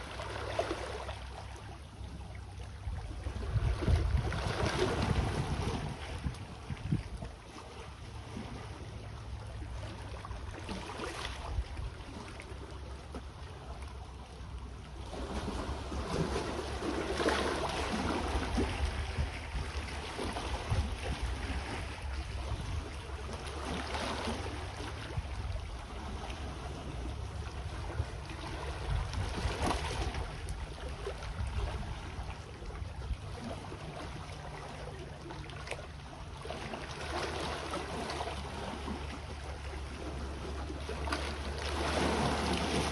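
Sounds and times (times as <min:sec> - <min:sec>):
steady low rumble: 0:11.4 - 0:23.7
sea waves washing onto shore: 0:36.6 - 0:42.9.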